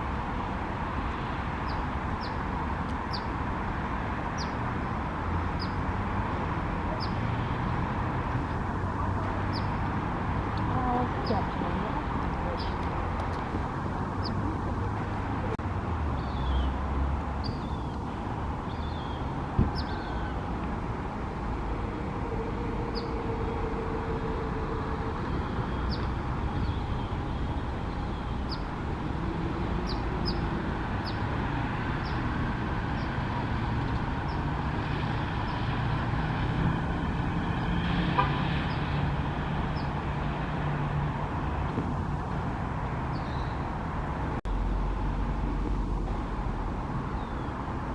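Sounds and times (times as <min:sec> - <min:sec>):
road traffic hum: 0:00.0 - 0:47.9
held tone: 0:21.9 - 0:25.9.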